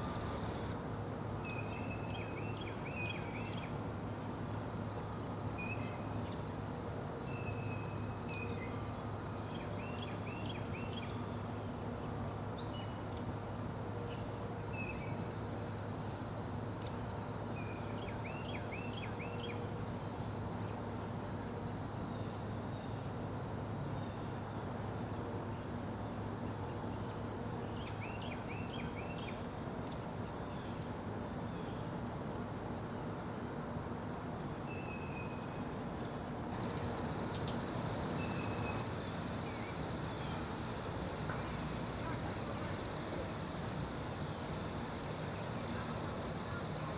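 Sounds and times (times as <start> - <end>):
faint high-pitched drone: 0.0 - 0.8, 36.6 - 46.9
small birds chirping: 0.0 - 0.8, 36.6 - 46.9.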